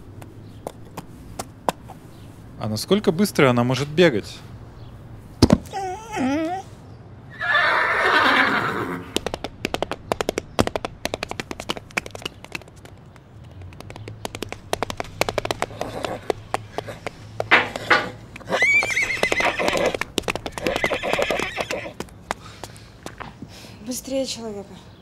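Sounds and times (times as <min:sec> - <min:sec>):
horse whinnying: 0:07.3 - 0:09.2, 0:17.8 - 0:20.0, 0:20.6 - 0:22.0
hooves galloping: 0:08.7 - 0:23.4.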